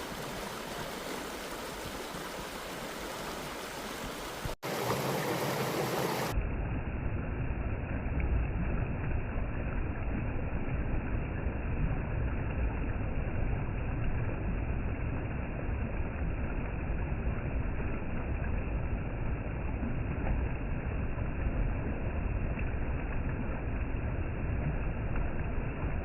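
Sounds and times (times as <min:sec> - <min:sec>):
creek water rushing: 0:00.0 - 0:06.4.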